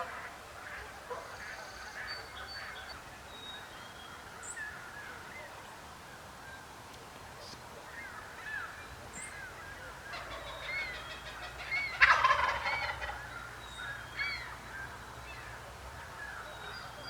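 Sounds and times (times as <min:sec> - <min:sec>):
small birds chirping: 0:01.2 - 0:17.0
turkey gobbling: 0:10.0 - 0:14.6.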